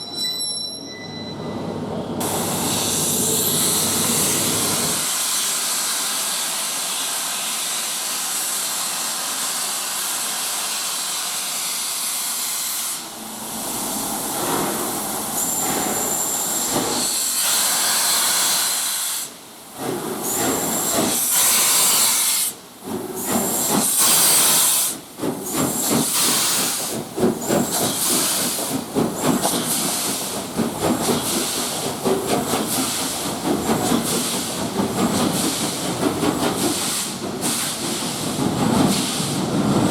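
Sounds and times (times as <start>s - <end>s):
steam blasts: 2.2s - 39.9s
steam hissing: 2.2s - 39.9s
steam locomotive exhaust beats: 13.0s - 39.9s.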